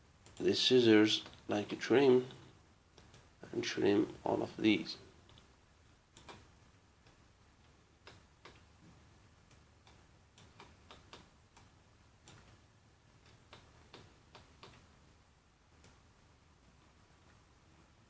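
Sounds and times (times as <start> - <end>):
low room hiss: 0.0 - 18.0
computer mouse clicks: 3.0 - 3.3, 6.1 - 7.2, 8.0 - 8.7, 9.5 - 12.6, 13.2 - 14.9.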